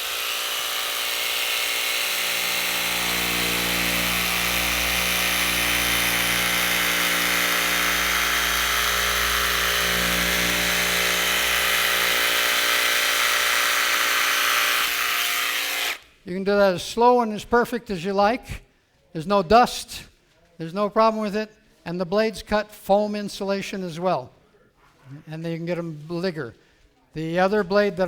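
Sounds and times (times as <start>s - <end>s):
jigsaw cutting vinyl: 0.0s - 16.1s.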